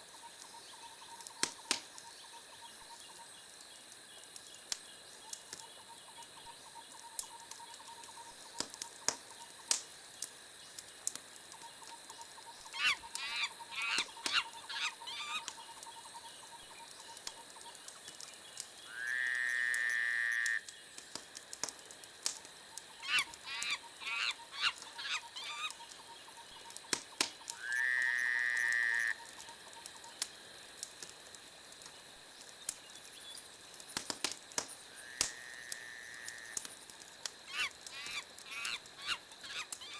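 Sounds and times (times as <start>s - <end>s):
wood fire crackling: 0.0s - 39.9s
animal chattering calls: 12.7s - 15.6s, 23.0s - 26.0s, 37.5s - 39.9s.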